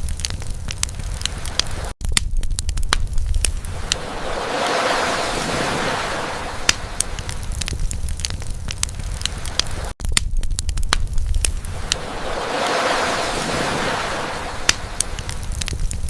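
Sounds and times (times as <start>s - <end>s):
campfire crackling and popping: 0.0s - 16.0s
ocean waves: 0.9s - 2.0s, 3.5s - 10.0s, 11.4s - 16.0s.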